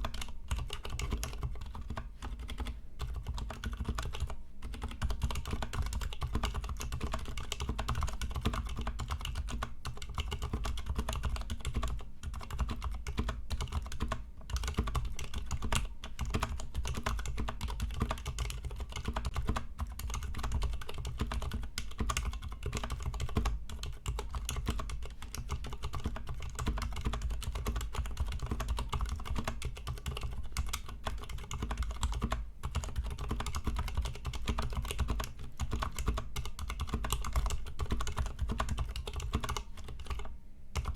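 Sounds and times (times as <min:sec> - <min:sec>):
fast mechanical keyboard typing: 0:00.0 - 0:40.9.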